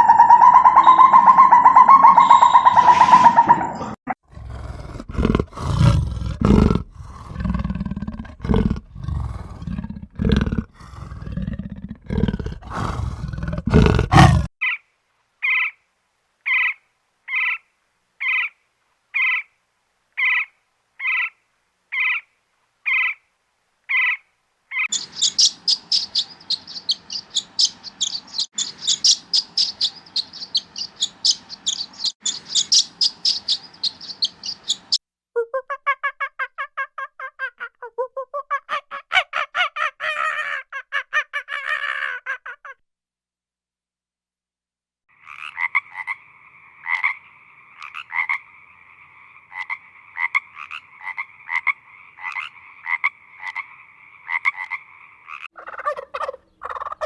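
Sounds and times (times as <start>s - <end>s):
high-pitched bird chirping: 0.0s - 4.0s, 24.8s - 36.2s
animal roaring: 0.0s - 14.5s.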